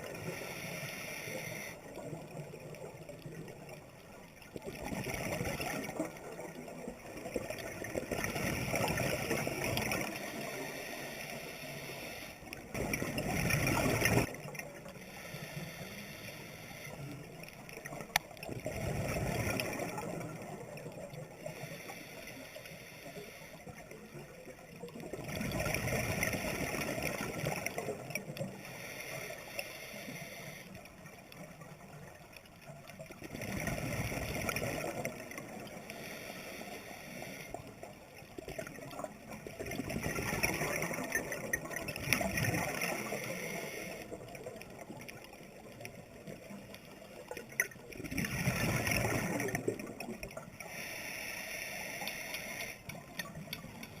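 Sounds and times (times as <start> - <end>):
underwater water noise: 0.0 - 54.0
gurgling exhaled bubbles: 4.6 - 10.7, 12.6 - 14.9, 17.8 - 21.4, 24.9 - 28.4, 33.0 - 35.8, 38.4 - 46.6, 47.2 - 50.6.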